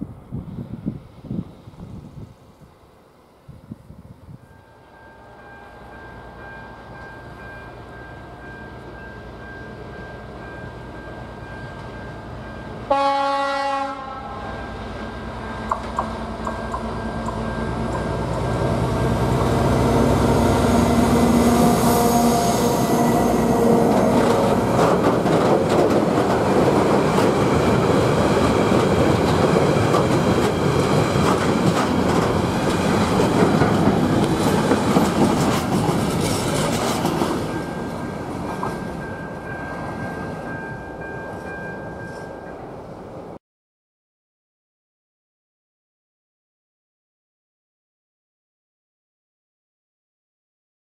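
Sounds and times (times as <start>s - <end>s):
diesel locomotive engine drone: 0.0s - 43.4s
freight wagons rattling over rails: 23.9s - 39.0s.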